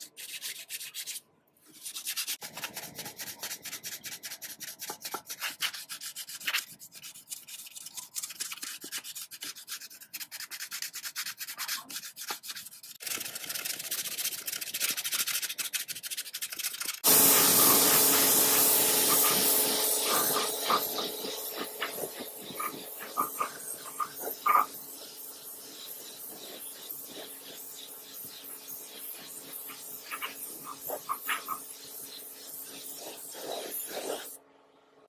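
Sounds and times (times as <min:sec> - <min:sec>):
hand sanding back-and-forth strokes: 0:00.0 - 0:34.4
steady sound with low hum: 0:17.0 - 0:35.0.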